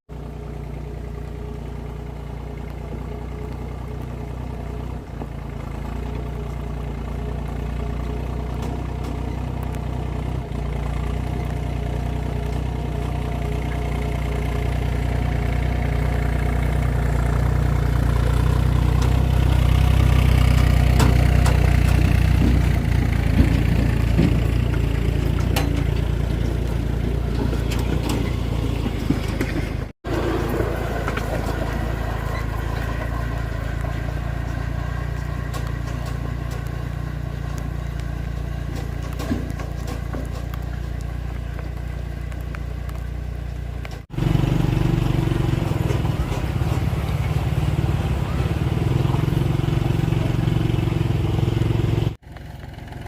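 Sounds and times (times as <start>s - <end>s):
engine running with deep hum: 0.1s - 53.0s
sharp clicks and knocks: 20.1s - 29.9s, 32.7s - 44.1s.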